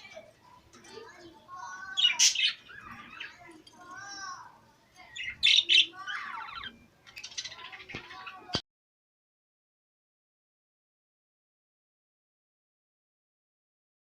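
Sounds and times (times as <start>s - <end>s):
cage birds chirping and squawking: 0.0s - 8.6s.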